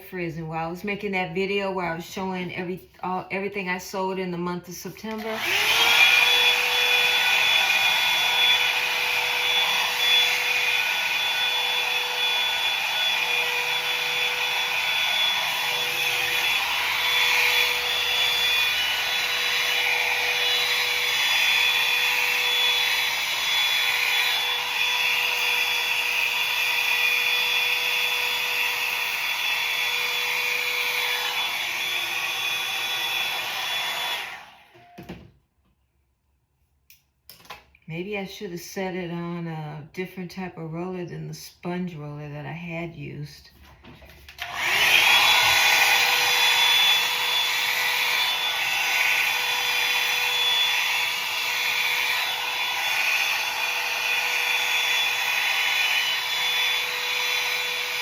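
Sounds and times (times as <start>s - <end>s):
hair dryer running: 4.9s - 35.3s, 43.9s - 58.0s.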